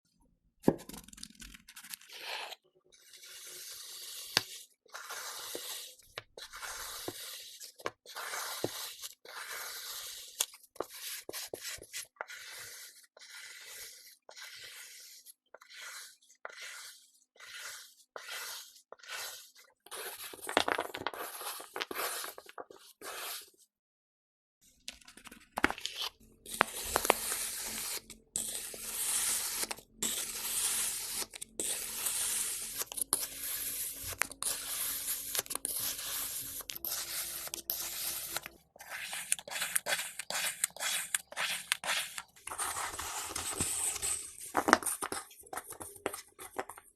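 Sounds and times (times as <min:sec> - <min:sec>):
knife cutting through sand: 0:03.2 - 0:20.4, 0:26.4 - 0:44.2.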